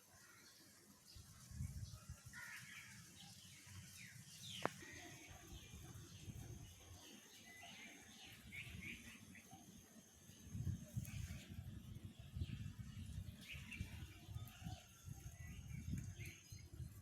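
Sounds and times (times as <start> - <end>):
birds calling: 2.3 - 15.0.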